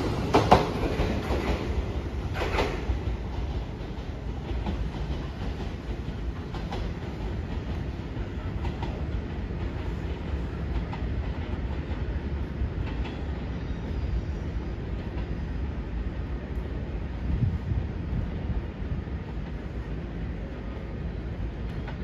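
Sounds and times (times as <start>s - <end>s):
wheels clicking over rail joints: 0.0s - 13.4s
electric train rumbling on rails: 0.0s - 22.0s.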